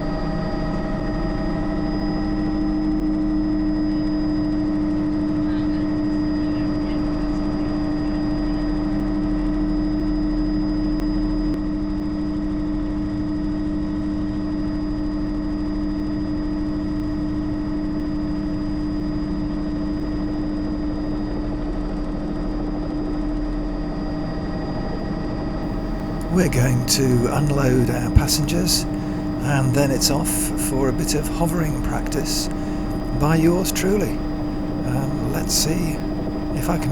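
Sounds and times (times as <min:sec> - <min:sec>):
helicopter engine and rotors whining: 0:25.7 - 0:36.9.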